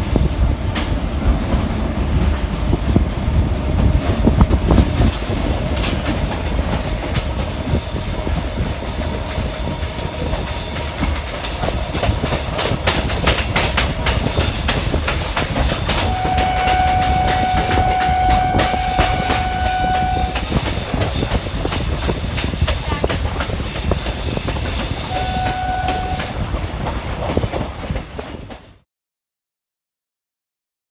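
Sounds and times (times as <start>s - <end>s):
train rumbling on rails: 0.0s - 28.8s
train horn: 15.7s - 21.0s, 25.0s - 26.6s.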